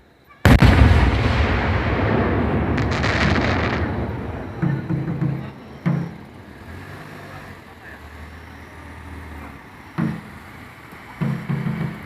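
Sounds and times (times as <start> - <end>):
firework boom rumbling: 0.4 - 7.1
firework crackling: 0.4 - 12.0.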